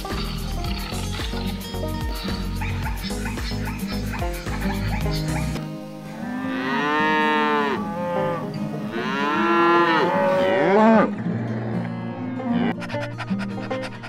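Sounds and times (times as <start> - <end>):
cow mooing: 6.2 - 12.8.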